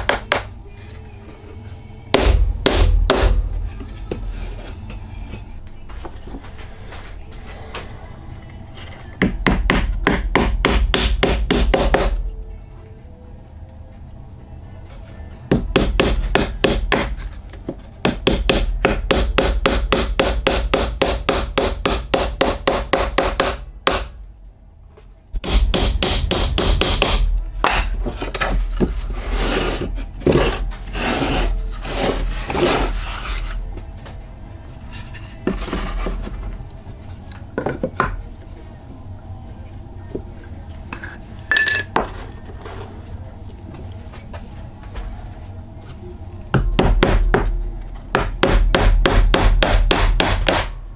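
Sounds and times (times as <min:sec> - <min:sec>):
rasp rubbing wood: 0:28.0 - 0:33.6.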